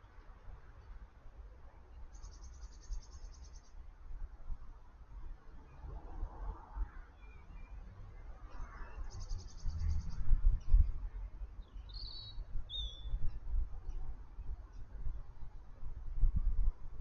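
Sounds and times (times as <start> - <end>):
low rumble on microphone: 7.6 - 17.0.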